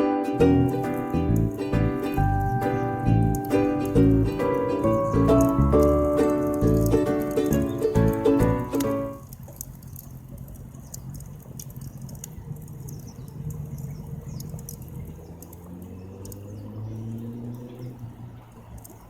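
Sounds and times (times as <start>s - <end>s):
low drone: 0.3s - 9.1s
campfire crackling and popping: 0.4s - 16.5s.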